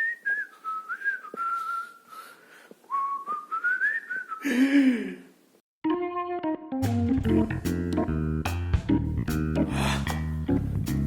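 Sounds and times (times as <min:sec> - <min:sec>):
person whistling a tune: 0:00.0 - 0:04.6.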